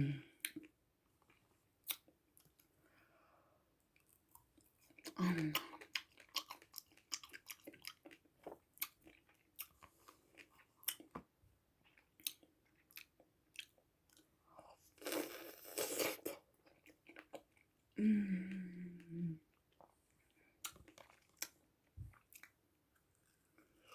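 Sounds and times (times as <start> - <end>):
person humming: 18.0 - 19.4.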